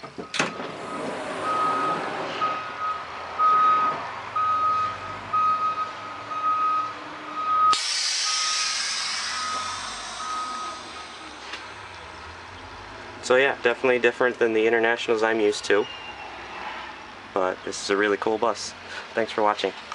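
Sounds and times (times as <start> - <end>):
bus warning beeper: 0.2 - 11.4
loud hiss of air: 7.7 - 11.8.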